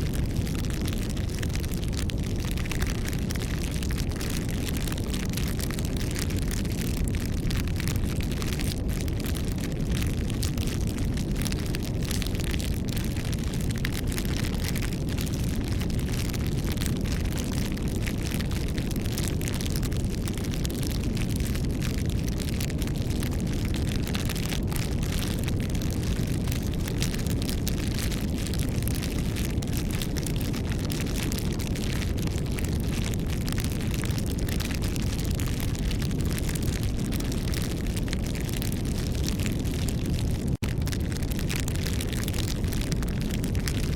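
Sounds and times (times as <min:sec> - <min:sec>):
steady low rumble: 0:00.0 - 0:07.9
wood crackling in campfire: 0:00.0 - 0:43.9.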